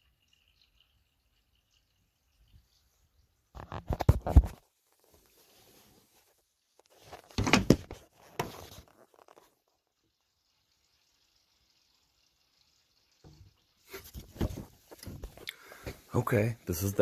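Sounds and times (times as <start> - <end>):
rustling and knocking: 6.9 - 9.5, 13.3 - 15.4.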